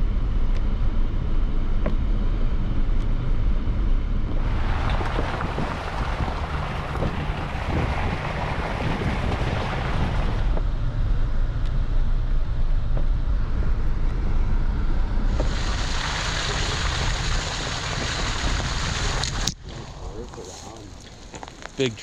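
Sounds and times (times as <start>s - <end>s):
vehicle engine rumble: 0.0s - 22.0s
tyre noise: 4.4s - 10.7s
loud hiss: 15.4s - 19.5s.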